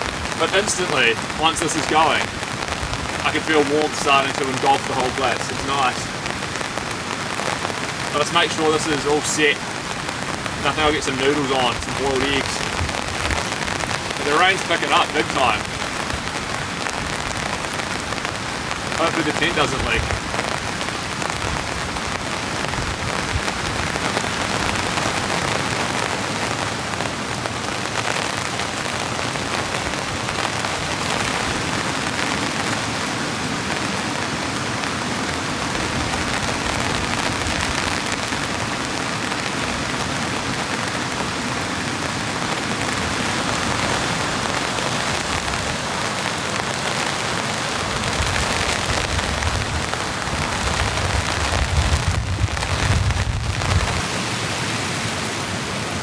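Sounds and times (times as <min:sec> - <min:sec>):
heavy rain on tent fabric: 0:00.0 - 0:56.0.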